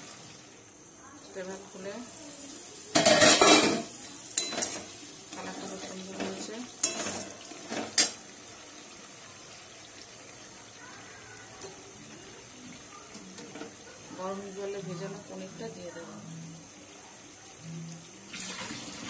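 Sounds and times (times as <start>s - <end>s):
gravy sizzling in a pan: 0.0s - 19.0s
metal spatula clinking on a pan: 2.9s - 4.9s, 6.2s - 8.2s.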